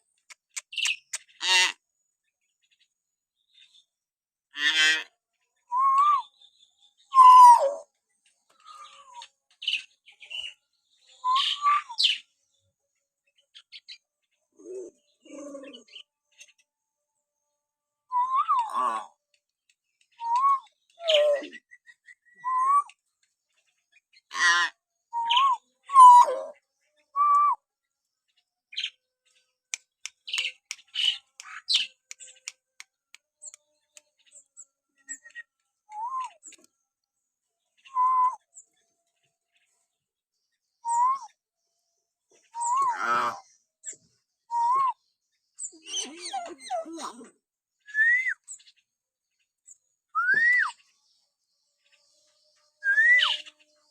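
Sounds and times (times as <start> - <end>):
rapid clicks and chirps: 0.1 - 1.4, 29.7 - 34.2
harsh bird calls: 0.1 - 1.8, 4.5 - 7.9, 8.5 - 12.3, 13.5 - 16.6, 24.1 - 27.6, 29.7 - 34.4, 42.3 - 45.0
myna whistling: 7.1 - 7.8, 22.4 - 22.9, 25.2 - 26.4, 37.9 - 38.4, 40.9 - 41.3, 44.5 - 45.0, 47.9 - 48.4, 50.2 - 50.8, 52.8 - 53.4.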